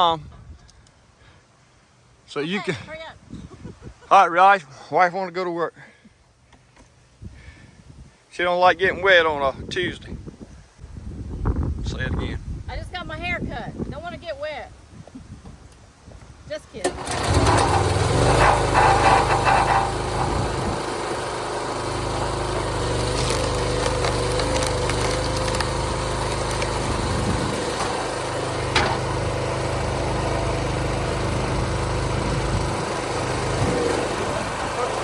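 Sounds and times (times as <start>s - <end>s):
loud clattering: 16.9s - 21.2s, 26.2s - 29.7s
small engine running: 16.9s - 35.0s.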